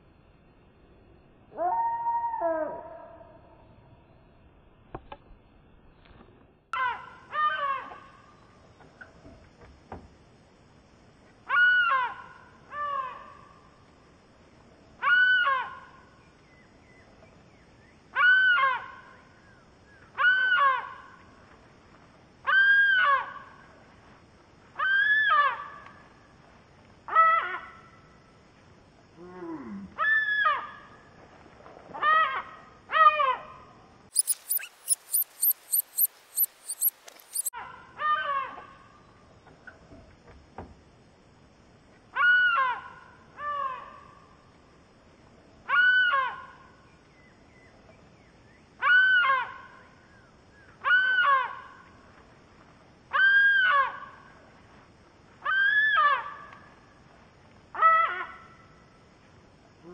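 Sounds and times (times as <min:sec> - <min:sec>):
gull calling: 0:34.2 - 0:37.5
rapid high-pitched ticking: 0:34.2 - 0:37.5.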